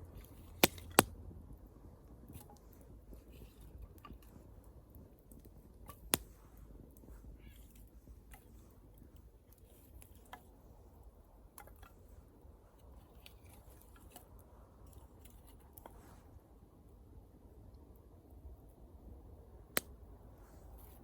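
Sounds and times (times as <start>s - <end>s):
wood fire crackling: 0.0s - 21.0s
loud fire snap: 5.3s - 6.4s.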